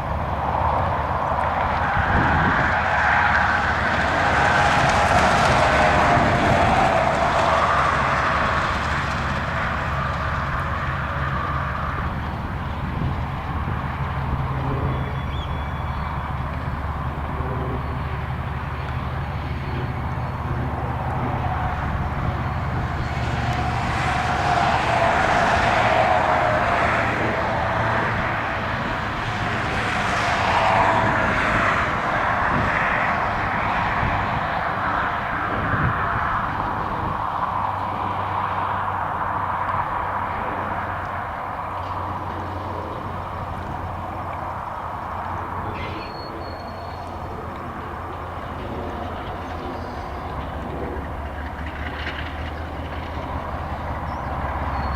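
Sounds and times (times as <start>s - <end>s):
diesel locomotive engine throb: 0.0s - 38.6s.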